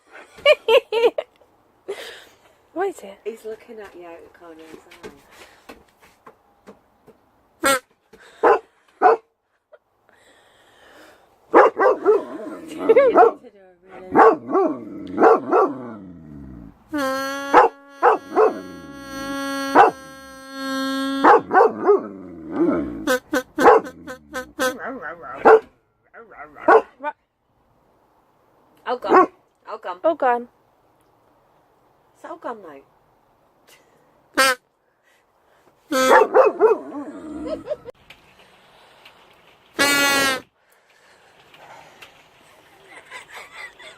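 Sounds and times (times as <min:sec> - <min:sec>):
dog barking: 0:08.4 - 0:09.3, 0:11.5 - 0:13.4, 0:14.1 - 0:15.8, 0:17.6 - 0:18.7, 0:21.2 - 0:22.1, 0:23.6 - 0:24.0, 0:24.7 - 0:27.0, 0:29.1 - 0:29.4, 0:36.0 - 0:37.0
toy buzzing tone: 0:16.9 - 0:21.4, 0:23.0 - 0:24.8
dog crying with wavering pitch: 0:17.5 - 0:20.4, 0:36.1 - 0:37.9.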